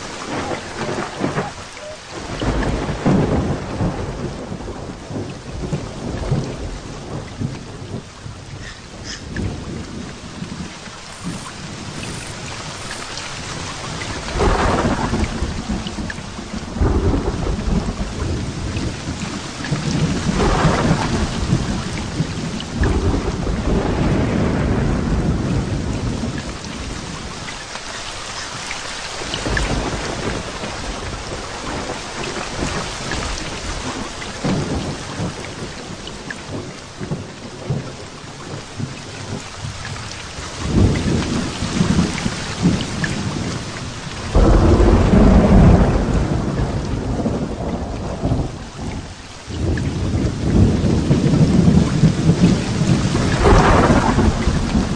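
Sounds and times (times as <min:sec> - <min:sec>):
rolling thunder: 0:00.0 - 0:27.5, 0:29.1 - 0:54.9
heavy rain hissing: 0:00.0 - 0:54.9.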